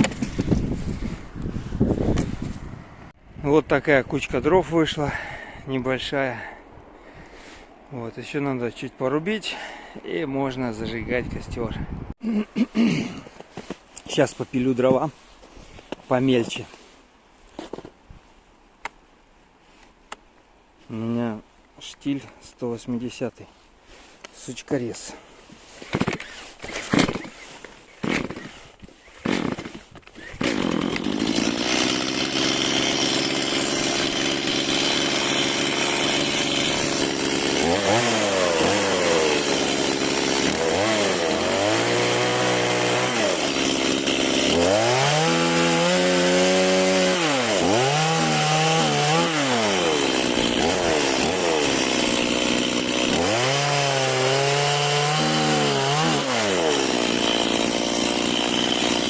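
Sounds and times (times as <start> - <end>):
chainsaw revving: 28.0 - 28.6, 29.2 - 59.0.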